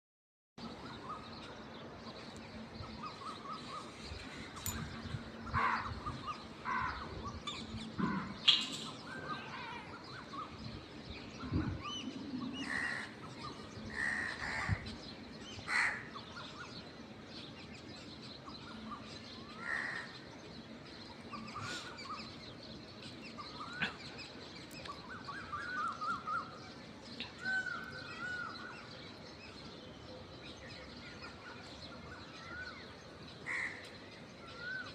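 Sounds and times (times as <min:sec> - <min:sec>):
outdoor background noise: 0:00.6 - 0:34.9
small birds chirping: 0:00.6 - 0:34.9
crows cawing: 0:05.6 - 0:05.9, 0:06.6 - 0:07.1, 0:08.0 - 0:08.4, 0:15.7 - 0:16.1, 0:33.5 - 0:33.9.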